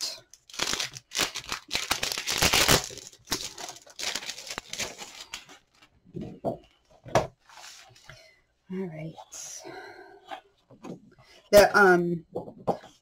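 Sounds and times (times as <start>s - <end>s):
paper and packaging rustling: 0.3s - 6.0s.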